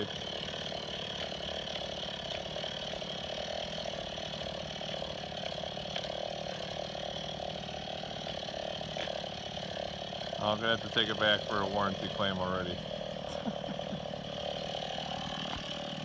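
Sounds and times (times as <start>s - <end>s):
chainsaw engine idling: 0.0s - 16.0s.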